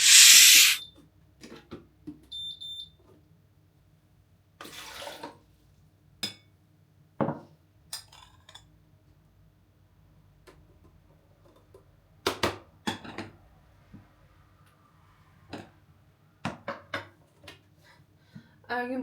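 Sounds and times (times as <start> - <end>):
running water rush: 0.0 - 0.8.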